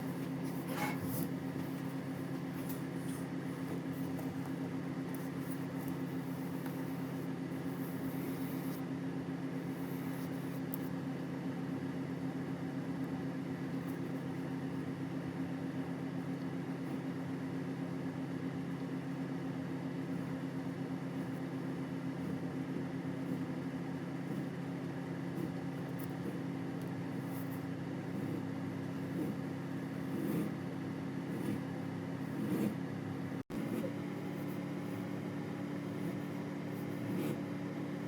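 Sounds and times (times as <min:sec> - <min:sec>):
faint scratching: 0:00.0 - 0:04.5
low machine hum: 0:00.0 - 0:38.0.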